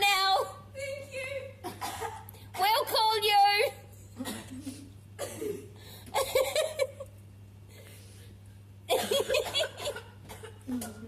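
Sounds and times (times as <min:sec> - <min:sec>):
low electrical hum: 0:00.0 - 0:11.0
people chuckling and laughing: 0:04.1 - 0:05.0, 0:06.1 - 0:07.2.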